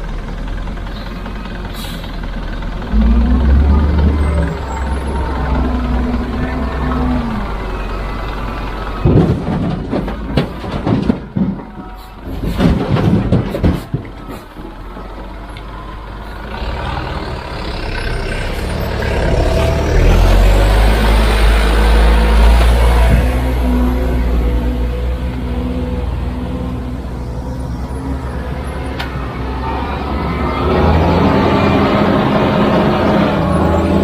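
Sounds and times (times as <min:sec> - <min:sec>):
diesel engine running: 0:00.0 - 0:34.0
machinery clanks and bangs: 0:02.6 - 0:15.5.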